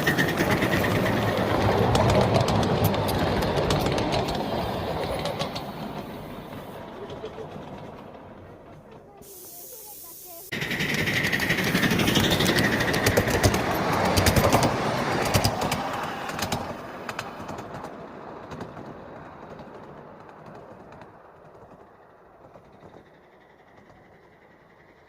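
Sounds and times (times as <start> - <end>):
steam hiss: 0.0 - 7.2, 9.1 - 14.4.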